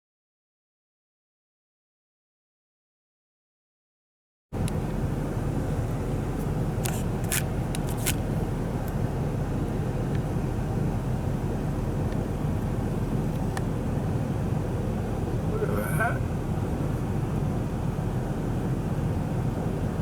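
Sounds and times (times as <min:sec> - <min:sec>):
car driving rumble: 0:04.6 - 0:20.0.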